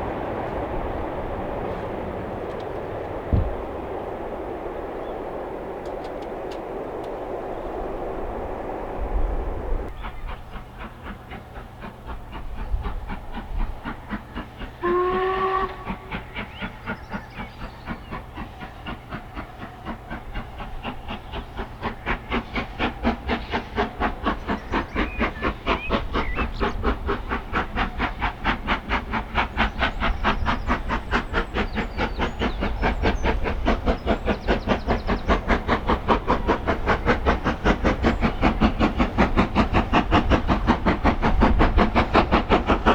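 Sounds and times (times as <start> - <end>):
steam locomotive exhaust beat: 0.0 - 42.9
steam whistle blast: 14.8 - 16.1.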